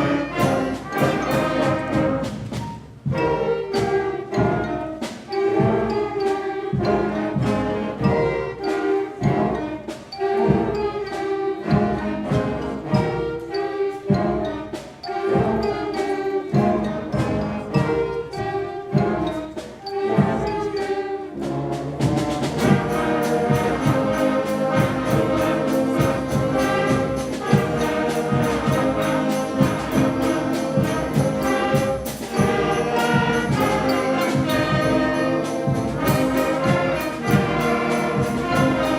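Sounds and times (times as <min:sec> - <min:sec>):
held brass chords: 0:00.0 - 0:19.2, 0:19.9 - 0:38.9
concert band playing: 0:00.0 - 0:38.9
drum strikes: 0:00.0 - 0:38.9.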